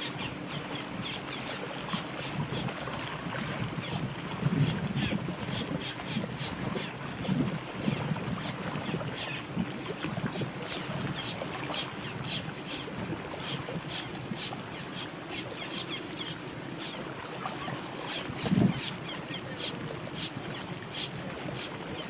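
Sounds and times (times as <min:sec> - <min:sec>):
water splashes: 0:00.0 - 0:22.0
wind buffeting microphone: 0:01.8 - 0:12.3, 0:17.4 - 0:22.0.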